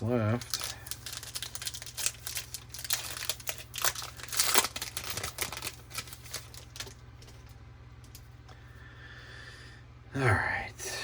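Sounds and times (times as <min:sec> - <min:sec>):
foil wrapper tearing and crinkling: 0:00.0 - 0:07.3.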